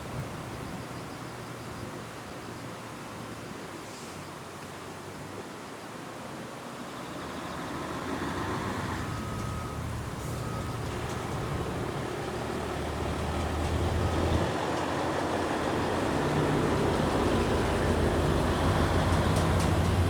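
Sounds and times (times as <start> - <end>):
traffic rumble: 6.7 - 20.0
engine hum: 6.8 - 20.0.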